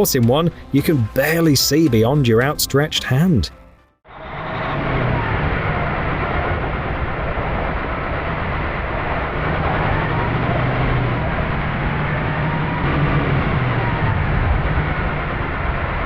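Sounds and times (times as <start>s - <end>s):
blizzard wind rushing: 4.1s - 16.0s
vehicle engine hum: 4.1s - 16.0s.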